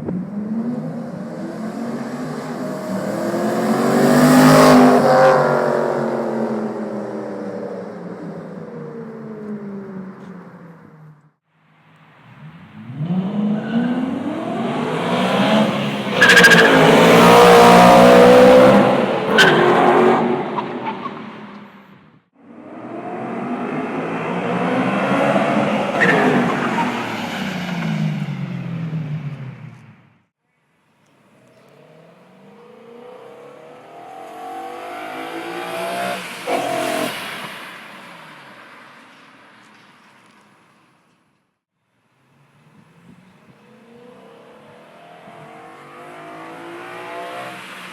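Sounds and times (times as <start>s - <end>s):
car engine accelerating hard: 12.3s - 20.9s.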